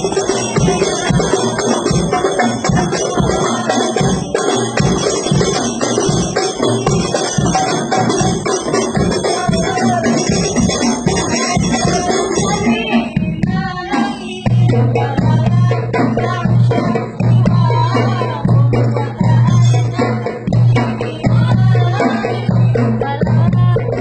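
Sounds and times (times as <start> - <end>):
jingling cymbals: 0.0 - 13.4
frame drums playing: 0.0 - 24.0.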